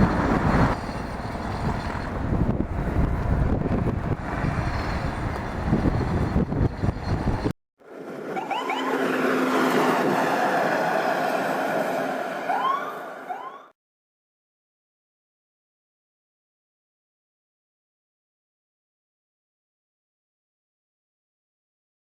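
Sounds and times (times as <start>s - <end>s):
wind buffeting microphone: 0.0s - 7.5s
rush of wind: 0.0s - 12.5s
rising whistling tones: 8.3s - 11.4s, 12.0s - 13.7s.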